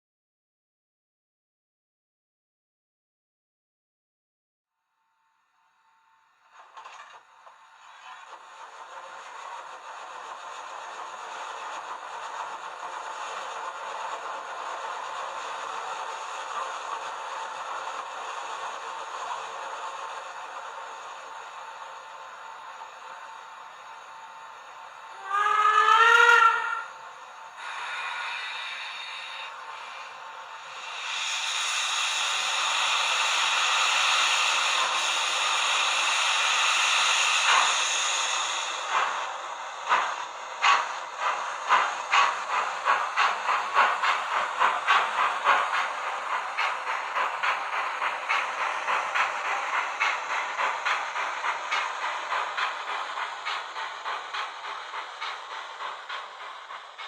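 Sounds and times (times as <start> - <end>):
steam locomotive chuffing: 6.5 - 57.0
steam hissing: 7.8 - 57.0
steam whistle blast: 25.2 - 26.9.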